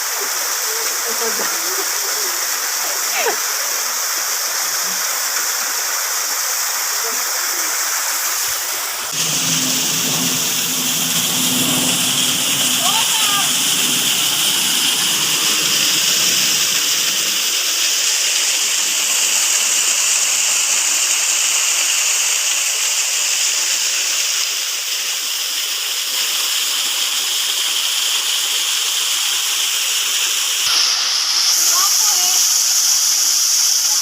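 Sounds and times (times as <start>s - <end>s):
waterfall rushing: 0.0s - 34.0s
faint low rumble: 9.1s - 14.9s.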